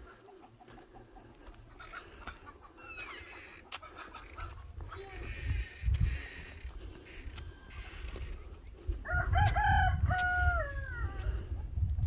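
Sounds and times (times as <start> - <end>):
faint bird calls: 1.8 - 8.4.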